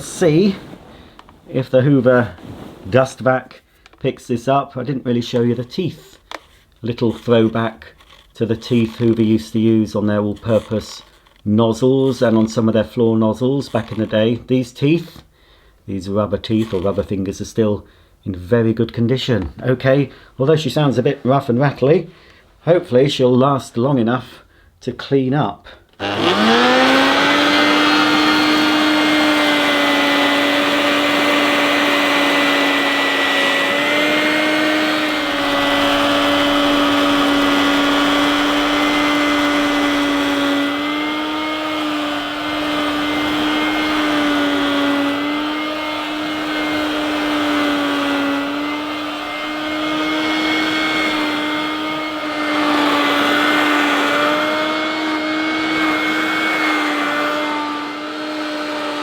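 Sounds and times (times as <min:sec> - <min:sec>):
handheld vacuum cleaner motor whining: 0:25.9 - 0:59.0.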